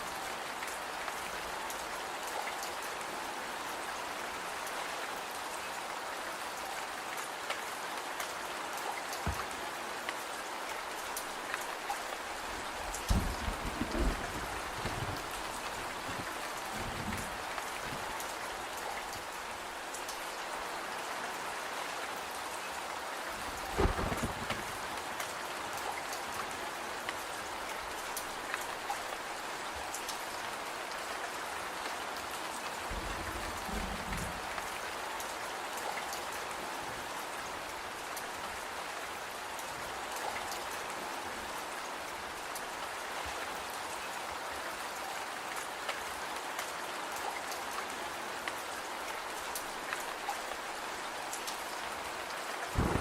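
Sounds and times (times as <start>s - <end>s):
steady rain falling: 0.0s - 53.0s
dull thump: 52.8s - 53.0s.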